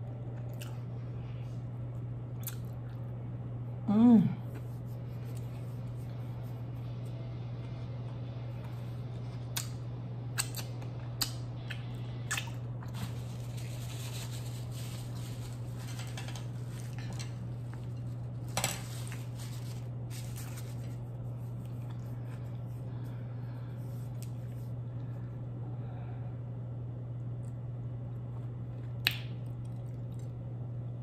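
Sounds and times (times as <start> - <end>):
low hum: 0.0 - 31.0
wet mouth clicks: 10.4 - 12.6.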